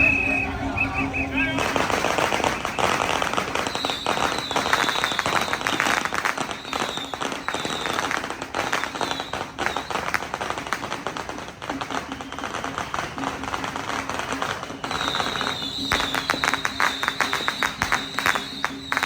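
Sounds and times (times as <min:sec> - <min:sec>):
falling whistle-like tones: 0:00.0 - 0:10.1, 0:14.4 - 0:19.0
firecrackers crackling: 0:00.0 - 0:19.0.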